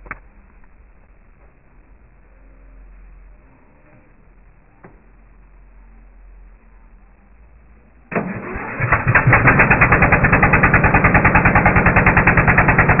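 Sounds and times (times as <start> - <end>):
starter motor cranking: 8.1 - 13.0
tractor engine running: 8.1 - 13.0.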